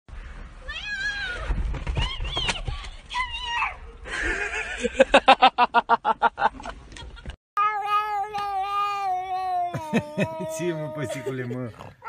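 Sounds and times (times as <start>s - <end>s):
laughter-like bursts: 4.1s - 7.3s
cat meowing: 7.6s - 11.4s.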